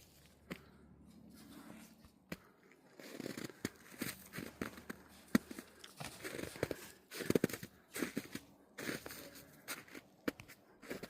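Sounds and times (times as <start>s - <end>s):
footsteps crunching in snow and twigs: 2.8s - 11.0s.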